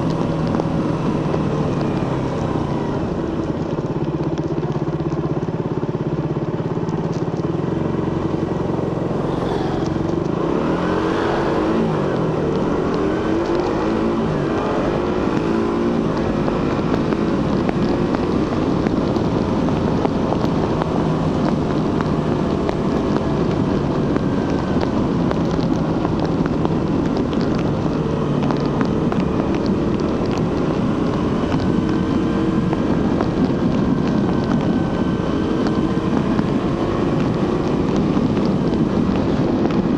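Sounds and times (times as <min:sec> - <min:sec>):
motorcycle engine at road speed: 0:00.0 - 0:39.9
wind rushing past: 0:07.7 - 0:15.1.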